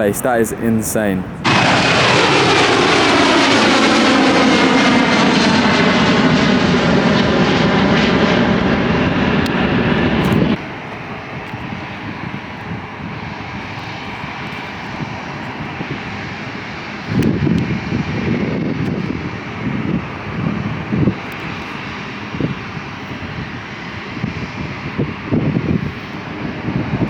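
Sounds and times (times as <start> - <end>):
jet aircraft passing: 0.0 - 27.0
wind rushing on microphone: 0.0 - 27.0.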